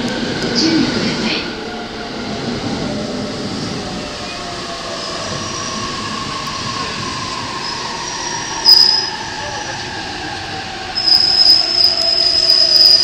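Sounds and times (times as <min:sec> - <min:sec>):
train rumble and rail noise: 0:00.0 - 0:13.0.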